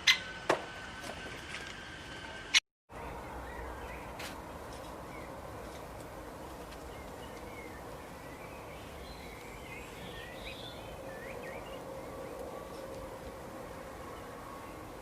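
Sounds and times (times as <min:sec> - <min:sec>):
outdoor background hiss: 0:00.0 - 0:15.0
small birds chirping: 0:06.6 - 0:13.0.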